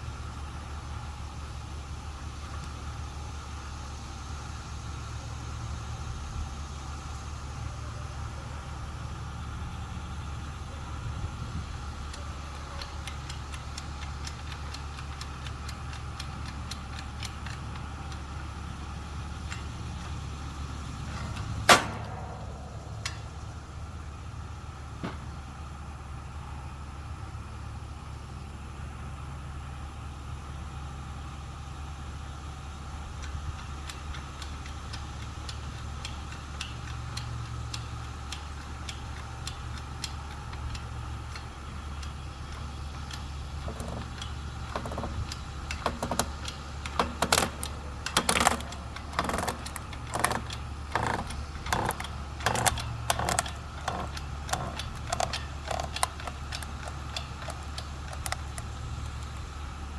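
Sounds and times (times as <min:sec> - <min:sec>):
steady low rumble: 0:18.8 - 0:25.6
light clicks: 0:33.2 - 0:59.8
wood cracking: 0:43.6 - 0:59.5.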